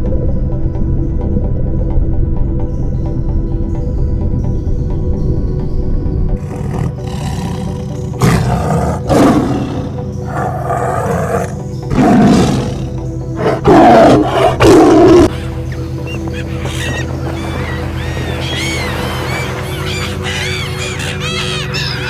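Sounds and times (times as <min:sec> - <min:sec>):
background music: 0:00.0 - 0:22.0
wild animal roaring: 0:06.4 - 0:15.3.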